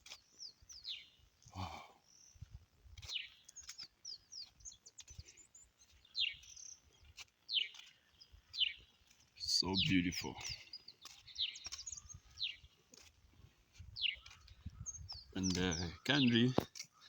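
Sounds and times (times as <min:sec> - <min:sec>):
high bird twittering: 0:07.5 - 0:12.8, 0:14.0 - 0:17.0.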